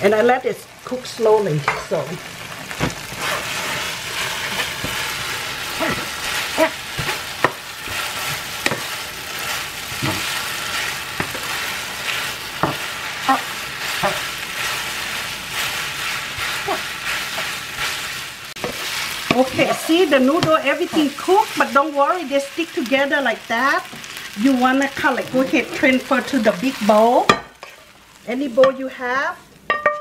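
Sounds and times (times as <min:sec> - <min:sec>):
noodles sizzling in a frying pan: 0:00.0 - 0:30.0
wooden spatula scraping a pan: 0:02.8 - 0:21.8.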